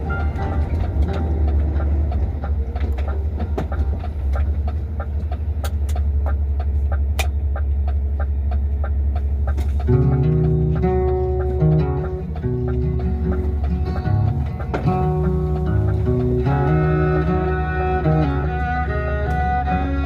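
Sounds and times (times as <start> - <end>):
guitar music: 0.0 - 4.6, 9.2 - 20.0
truck engine droning: 0.0 - 20.0
sharp regular clicking: 0.5 - 19.8.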